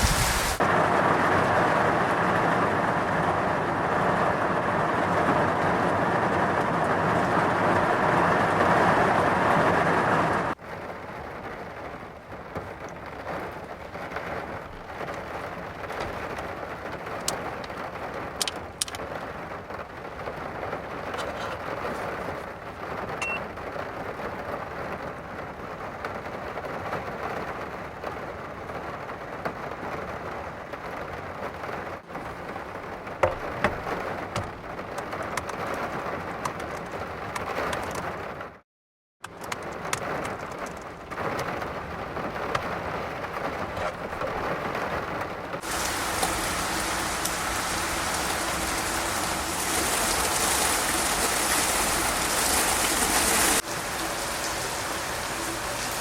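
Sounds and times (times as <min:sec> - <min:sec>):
heavy rain pouring: 0:00.0 - 0:38.6, 0:39.3 - 0:56.0
water drips: 0:45.6 - 0:56.0.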